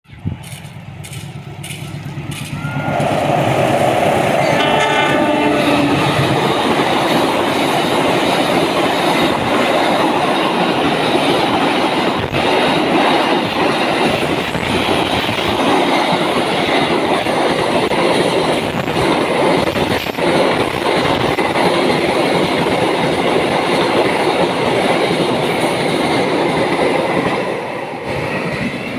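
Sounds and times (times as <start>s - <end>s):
train wheels clacking over rails: 0.2s - 28.9s
train horn: 4.4s - 6.6s.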